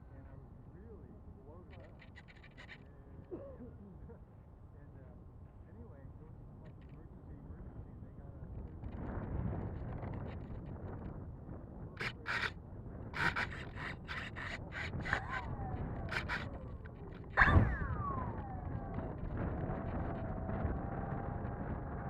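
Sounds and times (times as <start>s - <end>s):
wind noise on microphone: 7.0s - 22.0s
model airplane motor whine: 13.2s - 22.0s.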